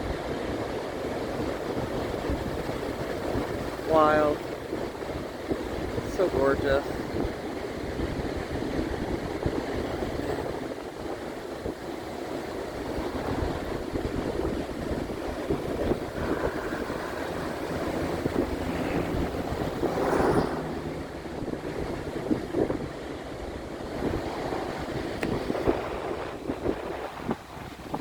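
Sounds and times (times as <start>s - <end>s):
ocean surf: 0.0s - 28.0s
wind on microphone: 0.0s - 28.0s.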